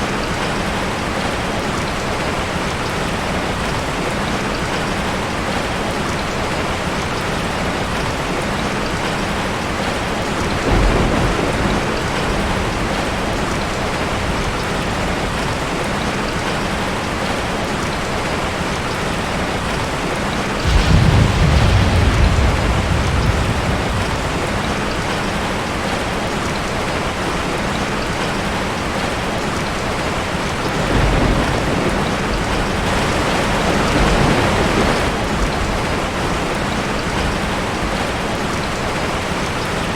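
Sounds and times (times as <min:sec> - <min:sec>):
steady rain: 0:00.0 - 0:39.9
rolls of thunder: 0:10.6 - 0:13.5, 0:20.6 - 0:25.5.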